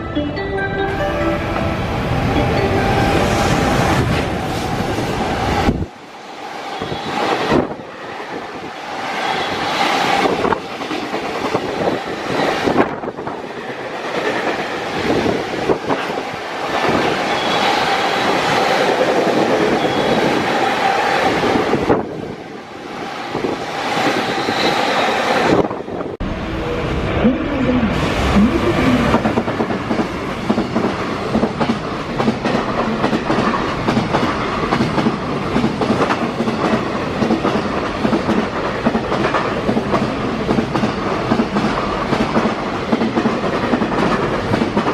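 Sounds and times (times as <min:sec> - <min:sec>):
freight train passing: 0:00.0 - 0:44.9
train wheels clattering over rails: 0:29.1 - 0:44.9.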